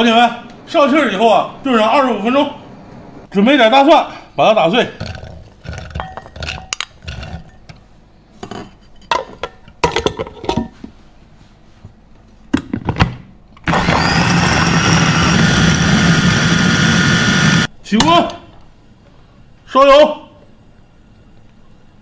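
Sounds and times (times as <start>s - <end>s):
food chopper motor running: 13.6s - 17.7s.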